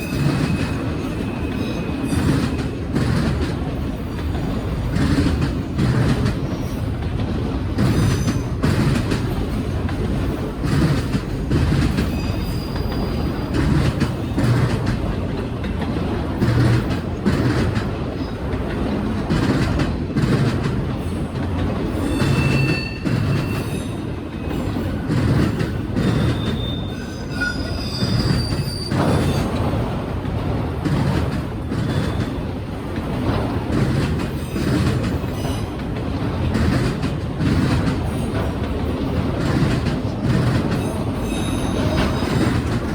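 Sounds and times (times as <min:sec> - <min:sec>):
high wheel squeals: 0:00.0 - 0:02.8, 0:12.0 - 0:13.5, 0:21.9 - 0:24.6, 0:26.0 - 0:29.5, 0:40.8 - 0:42.6
freight train rolling past: 0:00.0 - 0:42.9
wheels clattering over rail joints: 0:00.0 - 0:42.9.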